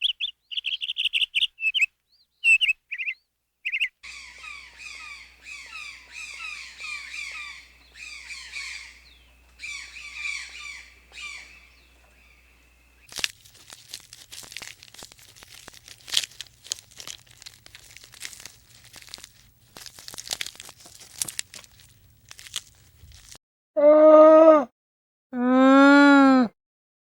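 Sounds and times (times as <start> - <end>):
falling bird calls: 0.0 - 13.2
crunching and crackling clicks: 13.0 - 23.4.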